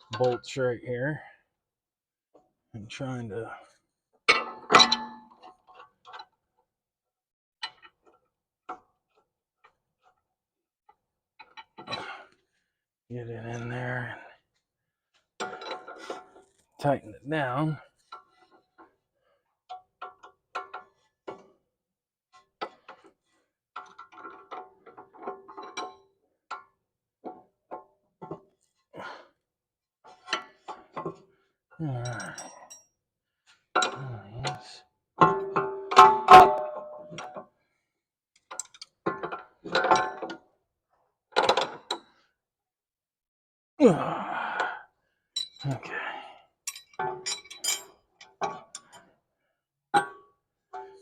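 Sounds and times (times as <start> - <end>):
metal tools clanking: 31.9 - 32.8, 35.4 - 37.3, 46.7 - 49.0.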